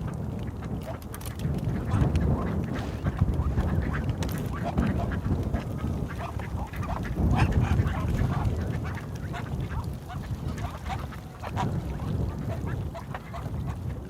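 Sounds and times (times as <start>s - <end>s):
steady low rumble: 1.5s - 9.1s
ducks quacking: 1.8s - 14.0s.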